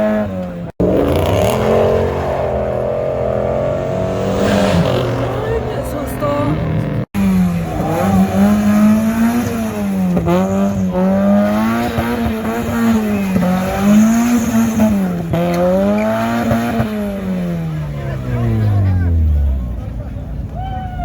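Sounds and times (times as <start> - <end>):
car engine revving: 0.0 - 20.4.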